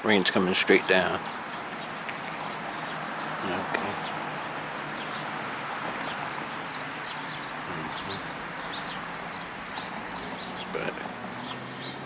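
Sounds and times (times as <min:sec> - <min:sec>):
birds chirping: 0:00.0 - 0:12.0
light rain hissing: 0:07.5 - 0:11.8.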